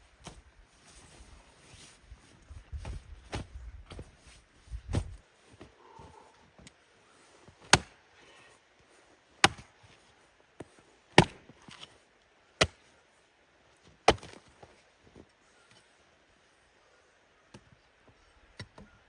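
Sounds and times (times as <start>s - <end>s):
wood chopping strikes: 7.6s - 8.0s, 9.4s - 9.7s, 11.2s - 11.9s, 14.1s - 14.5s.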